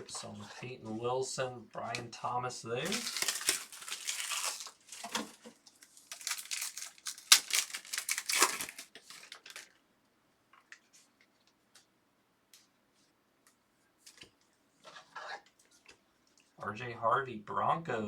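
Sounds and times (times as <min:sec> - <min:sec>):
foil wrappers tearing and crinkling: 0:02.8 - 0:09.7.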